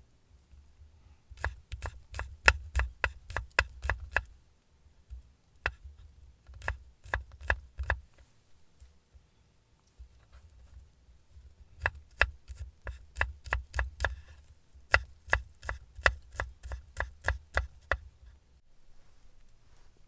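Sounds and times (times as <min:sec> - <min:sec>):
knife chopping on cutting board: 0:01.4 - 0:04.3, 0:05.7 - 0:05.9, 0:06.5 - 0:08.0, 0:11.8 - 0:18.0.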